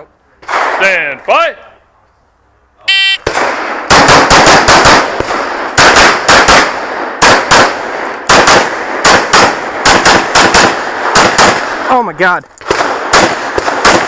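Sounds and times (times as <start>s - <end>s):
rapid pistol fire: 3.2s - 12.0s, 12.6s - 14.0s.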